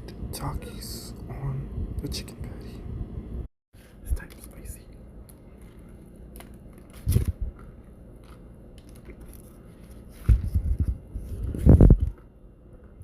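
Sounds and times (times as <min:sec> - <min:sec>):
biting and chewing crispy food: 0:05.3 - 0:10.6.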